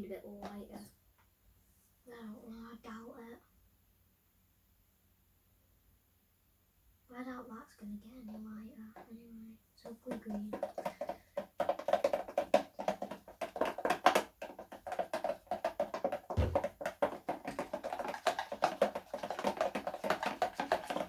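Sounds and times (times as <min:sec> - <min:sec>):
slime being stirred squelching: 0:09.8 - 0:21.0.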